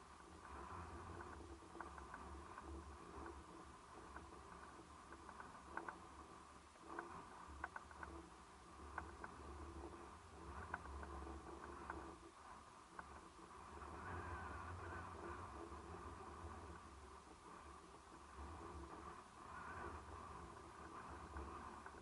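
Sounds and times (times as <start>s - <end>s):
low uneven rumble: 0.0s - 22.0s
light clicks: 4.1s - 6.0s, 6.9s - 8.2s.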